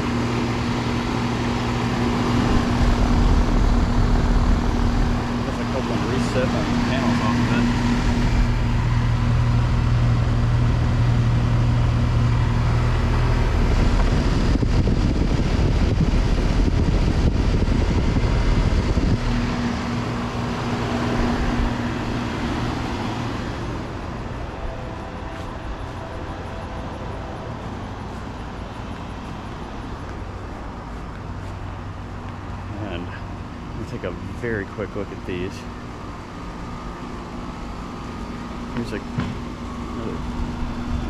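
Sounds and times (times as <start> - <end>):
compressor hum: 0.0 - 41.0
condenser fan rushing: 0.0 - 41.0.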